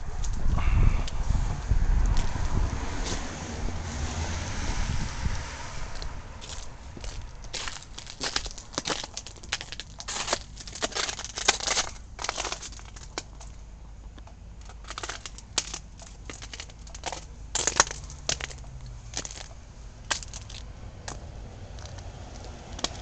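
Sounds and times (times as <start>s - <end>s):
footsteps crunching through snow: 5.9s - 13.0s.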